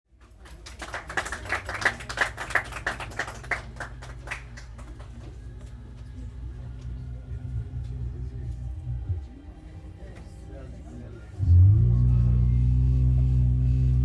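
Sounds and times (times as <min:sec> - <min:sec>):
people clapping: 0:00.1 - 0:06.2
low steady hum: 0:02.4 - 0:14.0.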